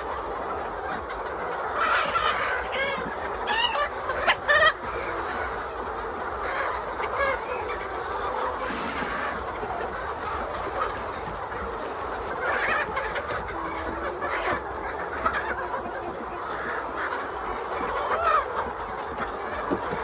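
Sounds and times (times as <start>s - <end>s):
hens clucking: 0.0s - 20.0s.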